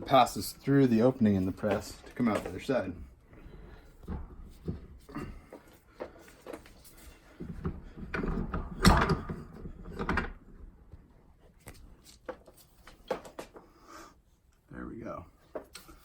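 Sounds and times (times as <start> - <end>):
metal clunks and scraping: 3.8 - 10.8.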